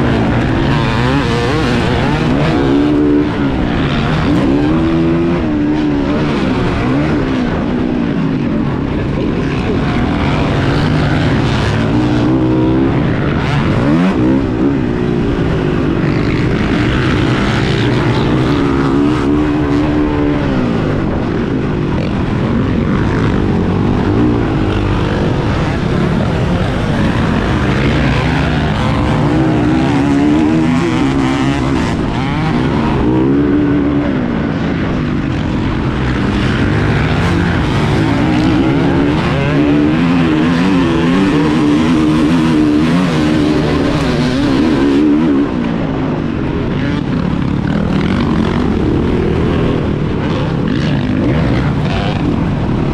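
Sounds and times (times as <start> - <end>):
dirt bike engines revving: 0.0 - 52.9.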